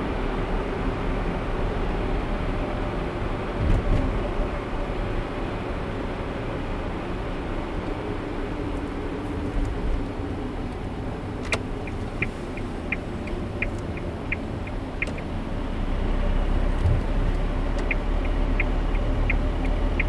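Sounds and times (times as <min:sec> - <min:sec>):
car road and engine noise: 0:00.0 - 0:20.0
turn signal ticking: 0:07.8 - 0:20.0.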